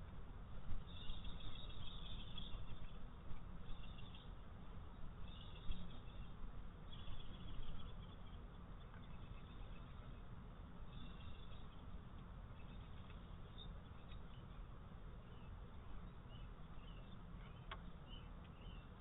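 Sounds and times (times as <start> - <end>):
low outdoor rumble: 0.0 - 19.0
songbirds twittering: 0.0 - 19.0.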